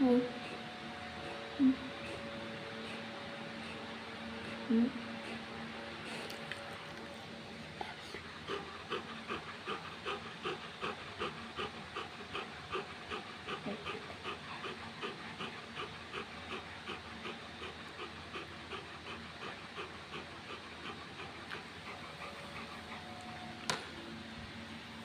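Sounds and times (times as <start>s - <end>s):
dog panting rapidly: 0.0s - 23.9s.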